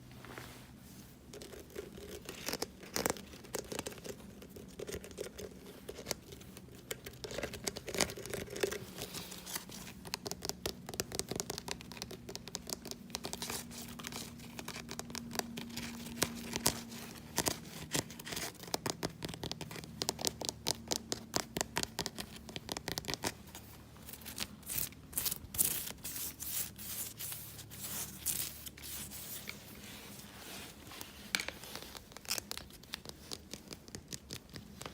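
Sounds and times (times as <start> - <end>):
fast tapping and scratching: 9.7 - 24.9.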